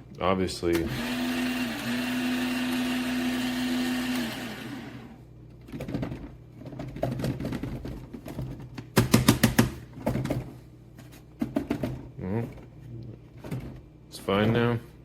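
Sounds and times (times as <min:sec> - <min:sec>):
coffee grinder motor spinning down: 0:00.9 - 0:05.2.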